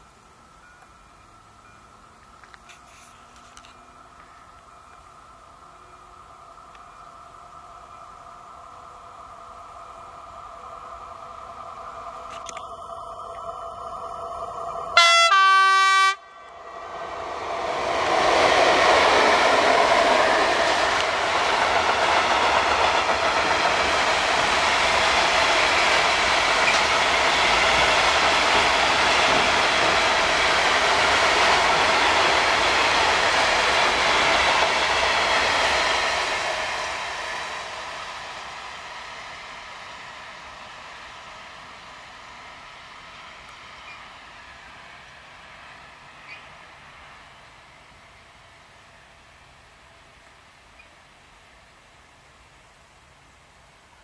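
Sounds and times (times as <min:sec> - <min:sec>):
train wheels on rail: 0:00.0 - 0:54.0
locomotive horn blast: 0:15.0 - 0:16.4.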